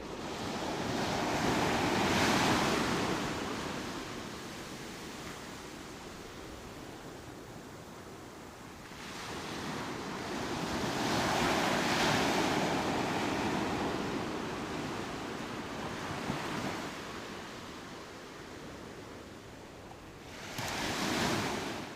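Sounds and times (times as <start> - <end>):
ocean waves breaking on beach: 0.0 - 21.9.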